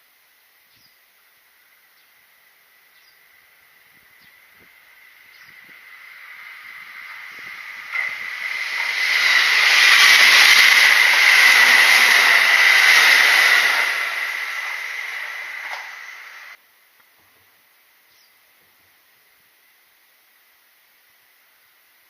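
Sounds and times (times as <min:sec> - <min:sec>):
train wheels rumbling on rails: 0:03.5 - 0:16.6.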